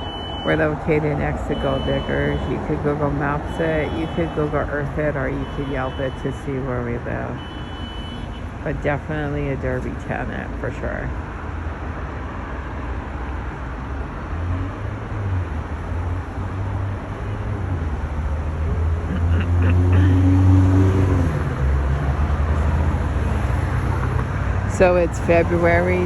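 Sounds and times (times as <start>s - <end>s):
road traffic hum: 0.0s - 26.0s
vehicle engine passing: 13.4s - 26.0s.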